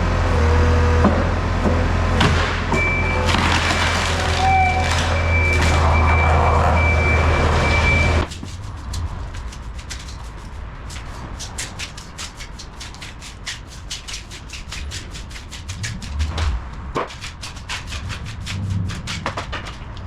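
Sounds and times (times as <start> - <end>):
skid steer engine running: 0.0 - 8.3.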